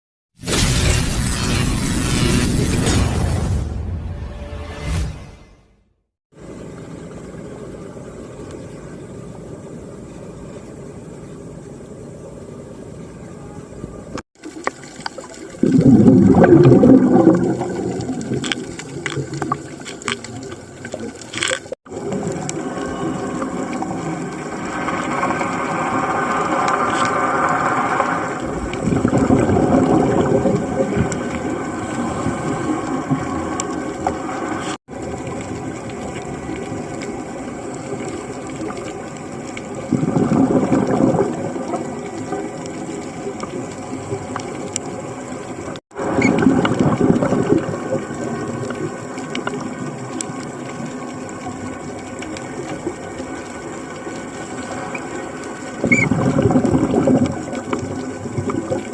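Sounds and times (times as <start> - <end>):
underwater droning hum: 6.4 - 58.9
diver exhaling bubbles: 15.5 - 19.8, 21.9 - 34.8, 39.8 - 42.2, 55.8 - 58.9.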